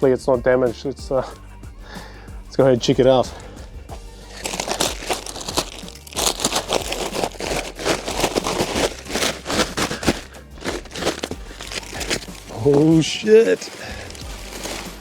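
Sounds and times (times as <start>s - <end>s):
plastic wrap crinkling: 3.9s - 15.0s.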